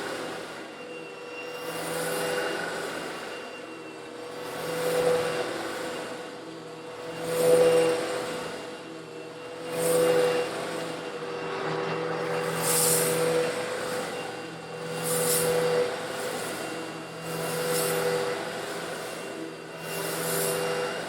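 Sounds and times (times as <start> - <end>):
vacuum cleaner motor hum: 0.0 - 21.0
hiss of grit sucked up: 12.4 - 14.3.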